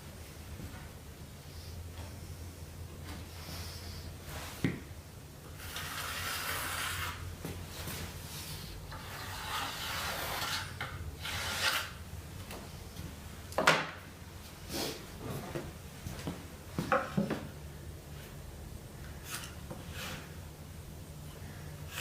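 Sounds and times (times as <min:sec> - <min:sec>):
hand tool rasping over wood: 0:08.9 - 0:12.0.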